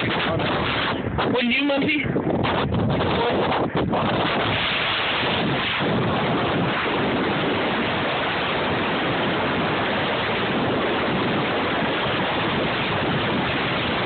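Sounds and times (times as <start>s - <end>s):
strong wind on microphone: 0.0s - 14.0s.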